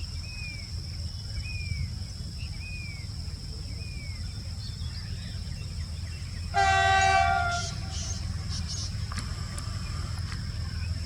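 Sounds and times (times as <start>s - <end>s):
steady low rumble: 0.0s - 11.0s
locomotive horn blast: 6.5s - 8.3s.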